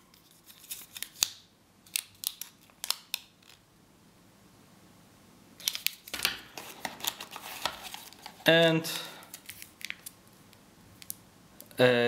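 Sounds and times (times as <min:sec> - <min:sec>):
plastic packaging crinkling: 0:00.2 - 0:03.6, 0:05.6 - 0:08.5, 0:09.3 - 0:10.2.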